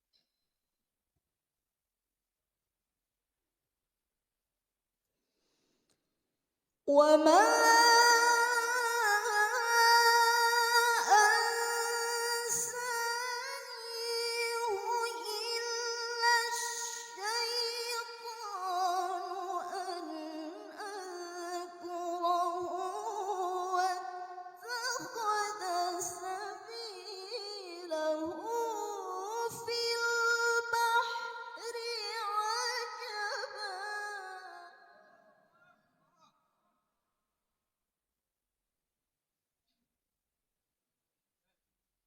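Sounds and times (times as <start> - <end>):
woman chanting recitation: 6.9 - 34.6.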